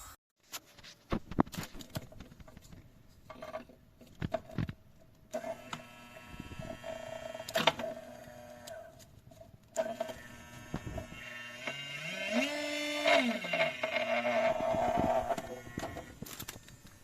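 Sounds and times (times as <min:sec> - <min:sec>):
electric nail drill whine: 0:05.4 - 0:08.9, 0:09.8 - 0:17.0.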